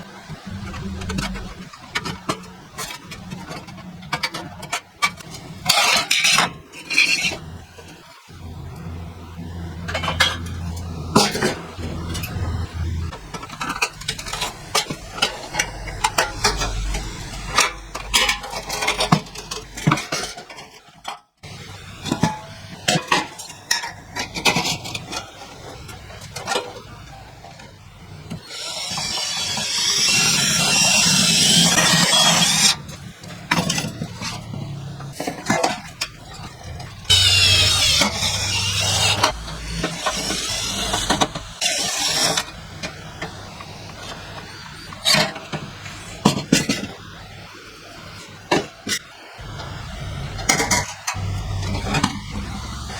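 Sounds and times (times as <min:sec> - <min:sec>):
loud scraping hissing noise: 0:00.3 - 0:02.1, 0:09.3 - 0:20.2, 0:28.4 - 0:32.9, 0:37.0 - 0:46.3, 0:49.3 - 0:52.9.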